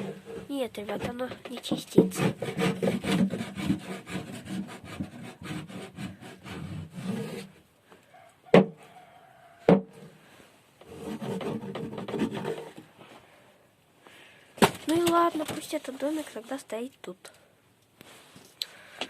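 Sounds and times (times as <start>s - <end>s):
stick scraping inside cat house: 0.0s - 7.6s, 10.8s - 12.9s.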